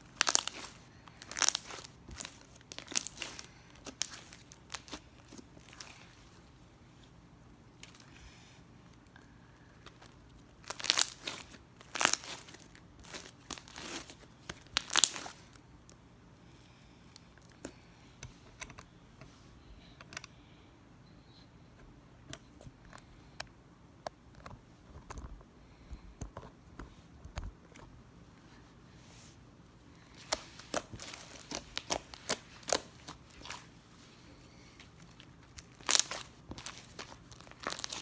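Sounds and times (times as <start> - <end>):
slime crackling and crinkling: 0.0 - 6.5, 9.8 - 16.0, 30.0 - 38.0.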